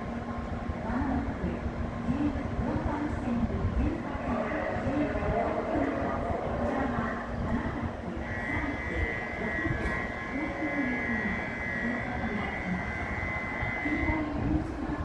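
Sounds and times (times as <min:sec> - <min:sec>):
train rumble: 0:00.0 - 0:15.0
high-pitched train whine: 0:04.0 - 0:15.0.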